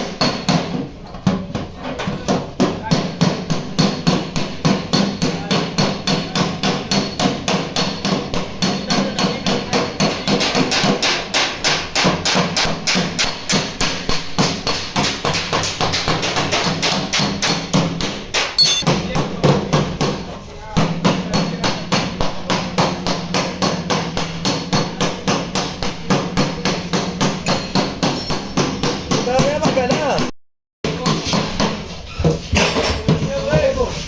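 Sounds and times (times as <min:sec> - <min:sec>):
hammer striking sheet steel: 0:03.0 - 0:30.0.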